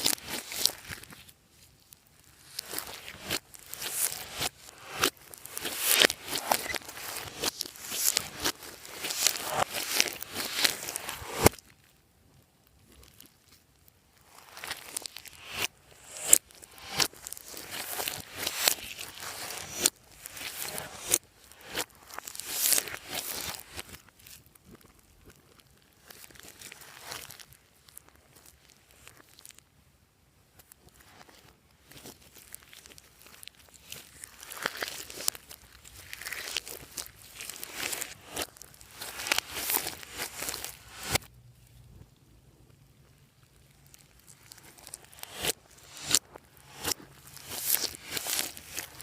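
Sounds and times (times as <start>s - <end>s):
slime crackling and popping: 0.0s - 29.7s, 30.6s - 49.0s
slime squished by hand: 32.0s - 41.3s.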